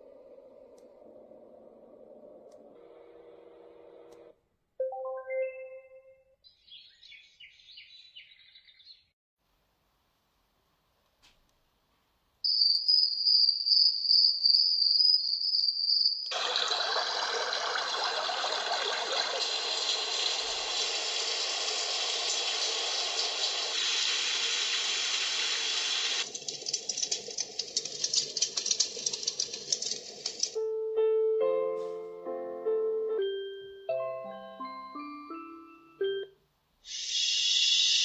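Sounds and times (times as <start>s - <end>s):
high pulsing chirp: 12.5s - 16.3s
music box lullaby tones: 30.6s - 36.4s.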